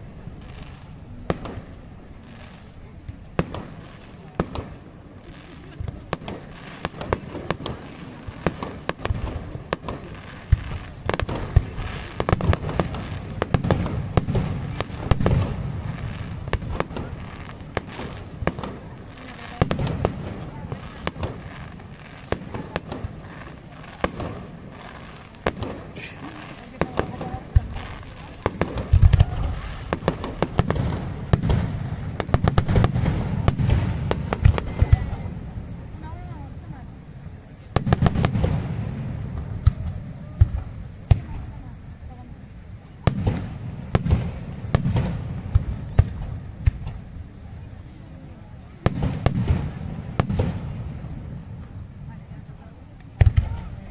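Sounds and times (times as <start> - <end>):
fireworks bangs and crackles: 0.0 - 53.9.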